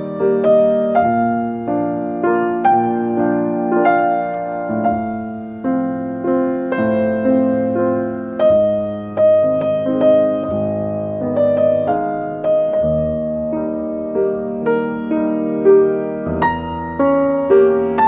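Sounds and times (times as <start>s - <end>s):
slow gentle piano music: 0.0s - 18.0s.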